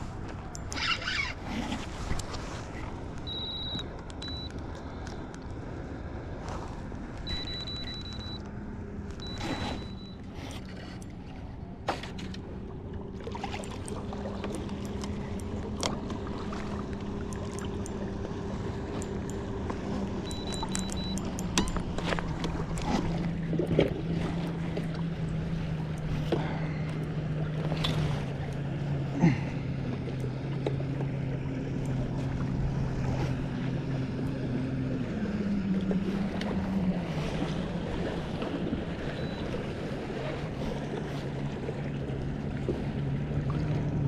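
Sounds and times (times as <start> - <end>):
water splashing: 9.1 - 44.0.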